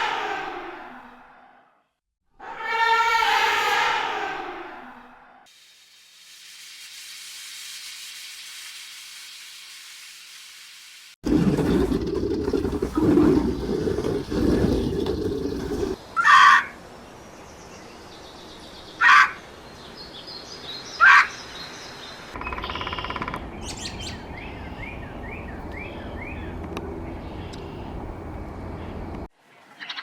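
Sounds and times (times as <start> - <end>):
birds calling: 11.3 - 16.7, 22.4 - 28.1.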